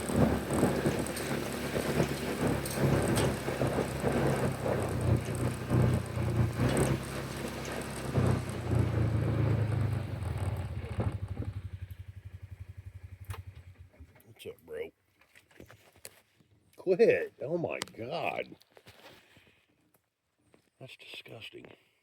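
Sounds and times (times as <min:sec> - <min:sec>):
rough noisy rumble: 0:00.0 - 0:14.1
vehicle engine running: 0:00.0 - 0:14.2.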